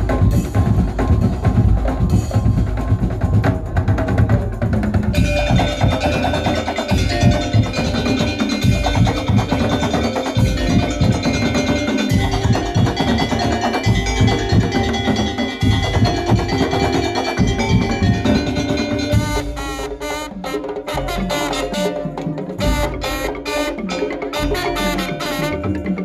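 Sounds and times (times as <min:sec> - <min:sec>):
percussion ensemble playing: 0:00.0 - 0:26.0
ringing metal notes: 0:05.2 - 0:20.1, 0:20.9 - 0:26.0.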